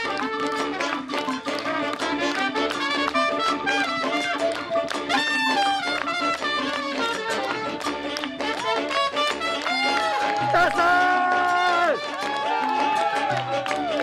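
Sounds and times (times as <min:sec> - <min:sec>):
big jazz band playing: 0:00.0 - 0:13.0.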